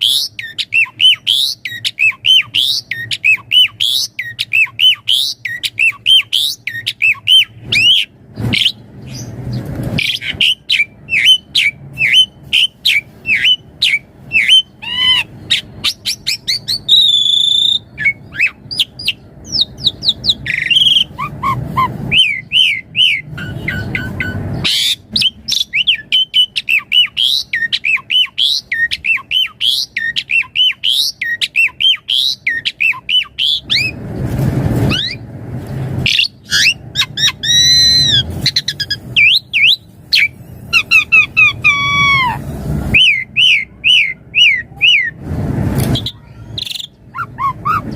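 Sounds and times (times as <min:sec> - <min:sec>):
starling singing: 0:00.0 - 0:34.0, 0:36.0 - 0:45.2, 0:45.8 - 0:47.9
low rustling noise: 0:33.9 - 0:36.1.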